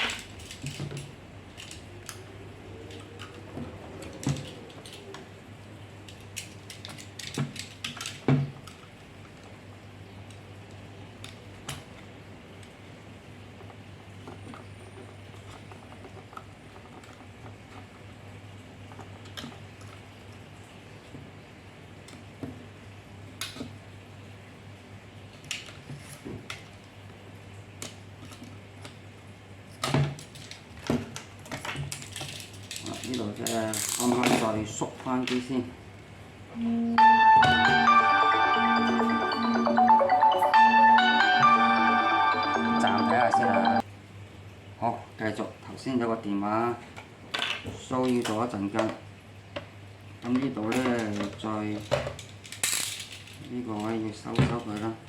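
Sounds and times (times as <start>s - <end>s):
small parts clicking: 6.1s - 8.8s, 50.8s - 53.9s
plastic parts clicking and knocking: 6.1s - 8.9s.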